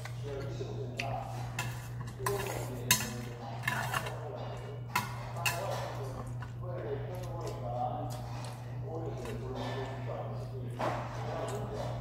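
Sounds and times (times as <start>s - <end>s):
utensils clinking against a bowl: 0.0s - 12.0s.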